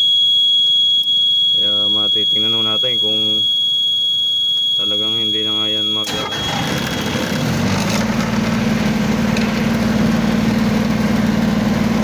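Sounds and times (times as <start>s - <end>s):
high-pitched alarm tone: 0.0s - 7.3s
refrigeration unit humming: 0.1s - 12.0s.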